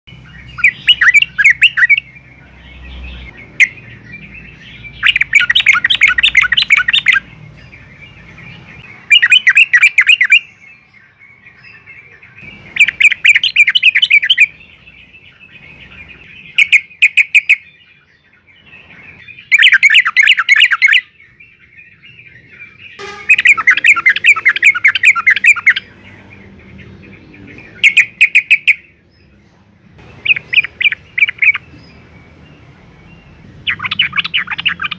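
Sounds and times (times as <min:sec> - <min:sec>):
bird chattering song: 0:00.1 - 0:34.9.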